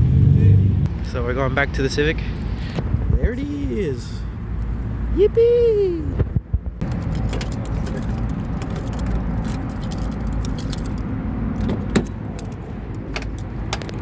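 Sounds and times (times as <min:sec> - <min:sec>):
keys jangling: 0:06.8 - 0:14.0.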